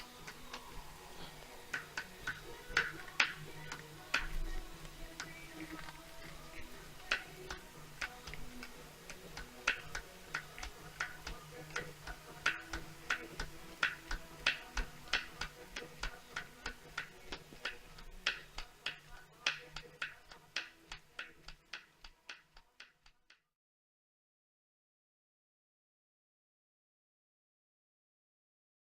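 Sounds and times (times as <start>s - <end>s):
sharp knocking tick: 7.0s - 23.2s.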